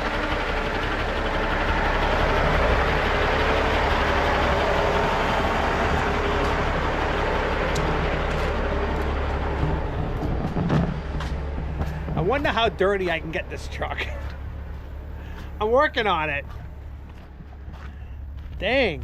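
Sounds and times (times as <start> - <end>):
road noise hiss: 0.0 - 18.6
diesel truck engine drone: 0.0 - 19.0.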